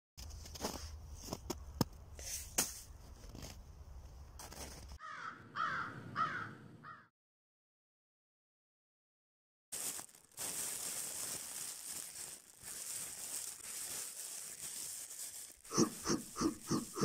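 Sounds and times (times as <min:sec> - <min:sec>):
harsh bird calls: 0:05.0 - 0:07.1.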